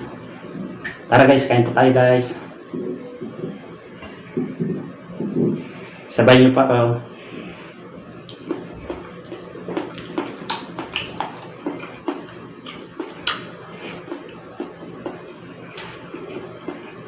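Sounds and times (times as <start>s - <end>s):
chewing and mouth clicks: 8.1s - 17.0s.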